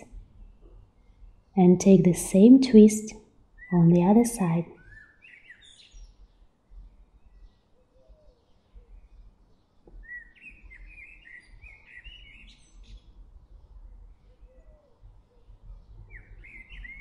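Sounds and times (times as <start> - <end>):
faint bird chirping and warbling: 3.6 - 17.0.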